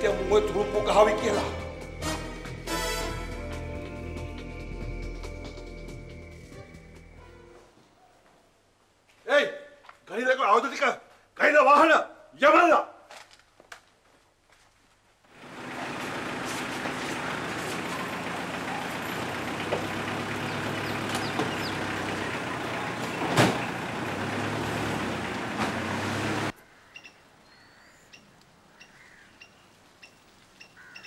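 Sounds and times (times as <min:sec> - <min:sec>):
car engine running: 0:15.3 - 0:26.5.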